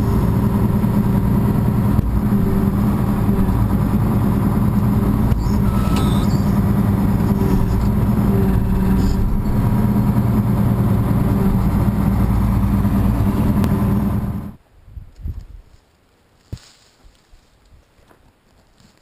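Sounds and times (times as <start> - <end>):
tractor engine running: 0.0 - 14.6.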